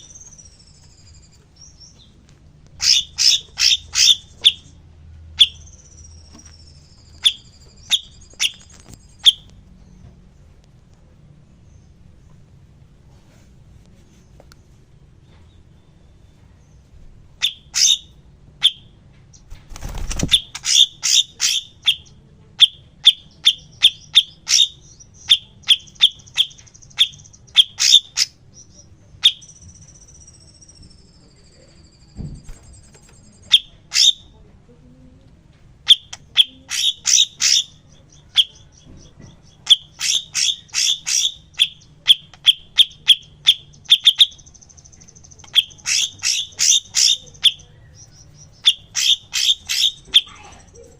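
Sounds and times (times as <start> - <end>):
songbird chirping: 0.0 - 13.2, 13.8 - 50.9
thin falling bird trill: 6.0 - 9.4.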